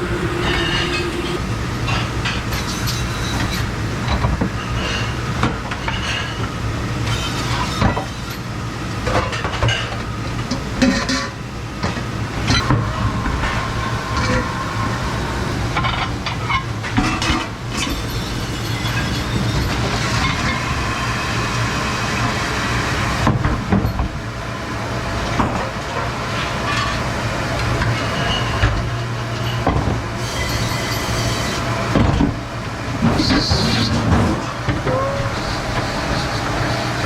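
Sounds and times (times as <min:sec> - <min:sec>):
machine hum and hiss: 0:00.0 - 0:37.0
dishes and racks clattering: 0:09.1 - 0:10.0, 0:10.6 - 0:15.0, 0:33.0 - 0:36.8.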